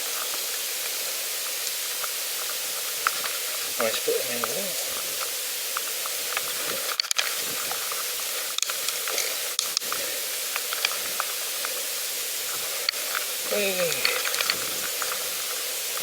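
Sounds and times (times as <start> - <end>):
small irregular clicks: 0.1 - 16.0.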